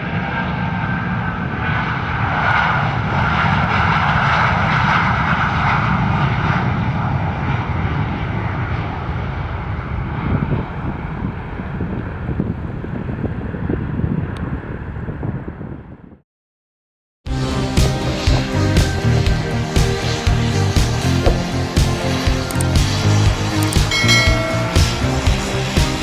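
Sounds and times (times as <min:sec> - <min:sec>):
jet engines roaring: 0:00.0 - 0:15.2, 0:17.3 - 0:26.0
wind buffeting microphone: 0:00.0 - 0:16.2.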